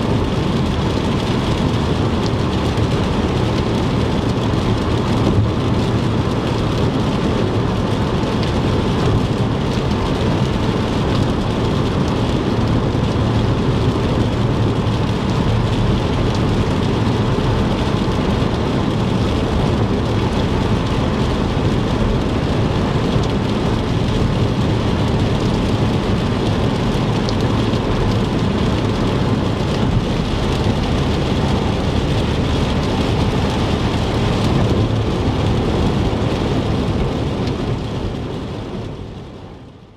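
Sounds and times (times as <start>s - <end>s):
rain hiss and patter: 0.0s - 39.9s
tyres rumbling on wet road: 0.0s - 39.9s.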